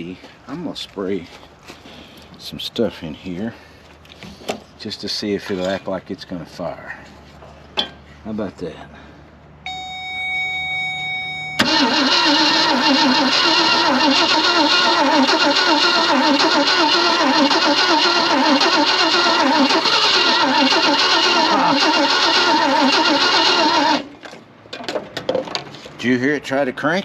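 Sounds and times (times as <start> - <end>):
steady high whine: 9.6 - 13.4
engine cranking on starter: 11.6 - 24.1.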